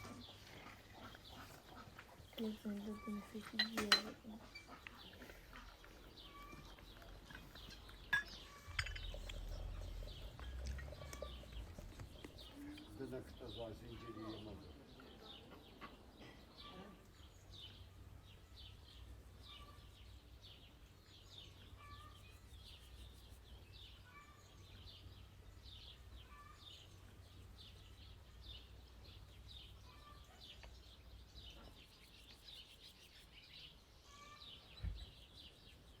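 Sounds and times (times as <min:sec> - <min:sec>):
small birds chirping: 0:00.0 - 0:36.0
low outdoor rumble: 0:08.7 - 0:12.9
thump: 0:34.8 - 0:35.1.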